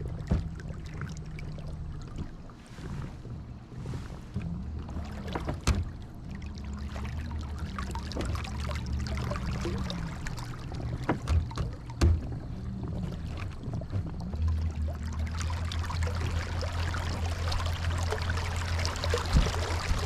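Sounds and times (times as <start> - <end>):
low steady hum: 0.0 - 20.0
water rushing along a hull: 0.0 - 20.0
sharp knocks: 11.1 - 12.4.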